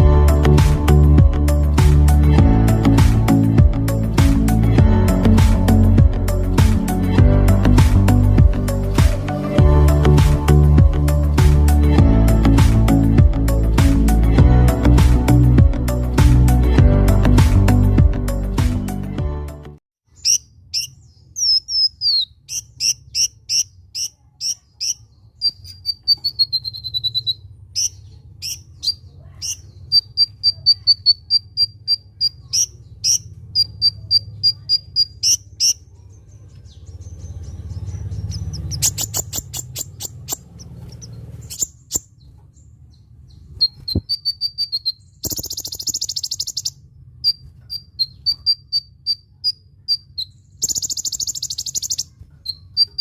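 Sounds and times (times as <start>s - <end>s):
small bird chirping: 20.1s - 53.0s
hard clicking bird notes: 38.4s - 42.0s, 45.2s - 46.7s
buzzy bird rattle: 45.2s - 46.7s.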